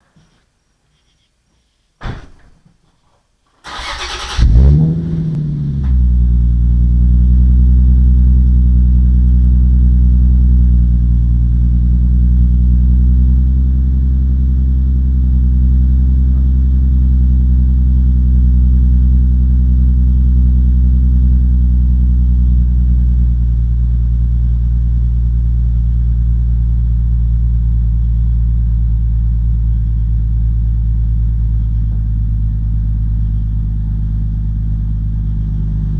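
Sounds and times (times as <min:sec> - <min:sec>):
engine cranking: 0:03.7 - 0:06.0
car engine fast idle: 0:03.7 - 0:07.3.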